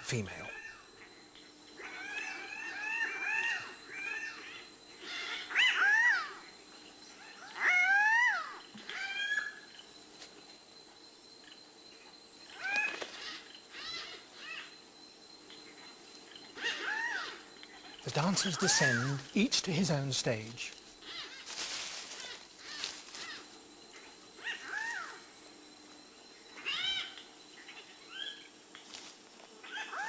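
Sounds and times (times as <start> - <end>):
birds giving harsh calls: 0.1 - 9.9, 12.5 - 14.8, 15.6 - 25.6, 26.4 - 28.6.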